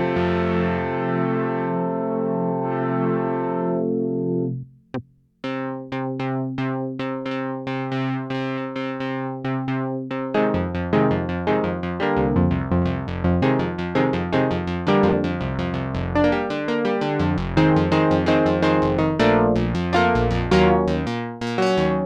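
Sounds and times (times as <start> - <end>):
synthesizer plucky repeated notes: 1.6 - 4.7, 8.8 - 22.0
synth bass line: 10.4 - 22.0
synth chords: 10.4 - 22.0.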